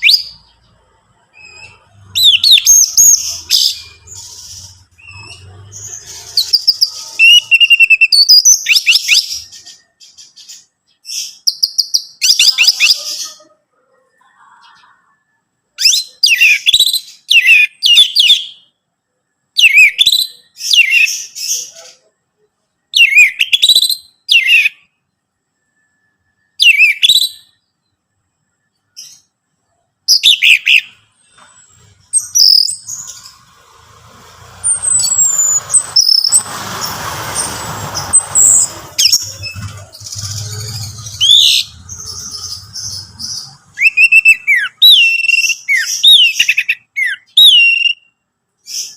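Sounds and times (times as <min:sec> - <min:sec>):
rush of noise: 0:32.8 - 0:43.8.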